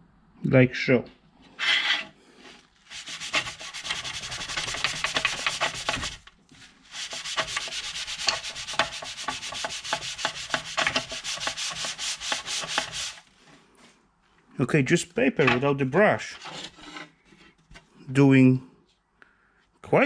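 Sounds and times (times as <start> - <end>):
brush scrubbing plastic: 1.6 - 13.5.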